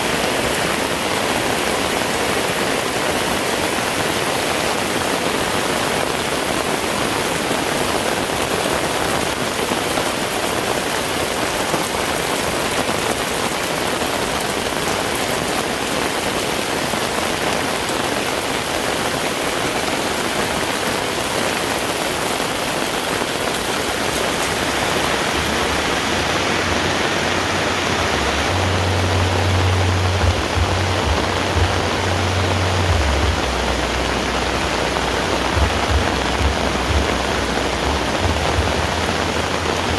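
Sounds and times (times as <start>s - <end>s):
heavy rain: 0.0s - 39.9s
low rumble: 27.7s - 39.9s.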